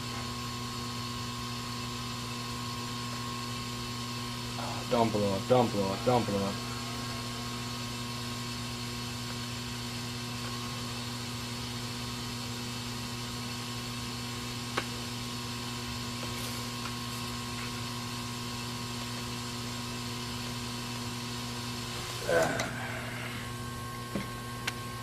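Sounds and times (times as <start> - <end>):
electrical mains hum: 0.0 - 25.0
faint high whine: 4.5 - 10.8.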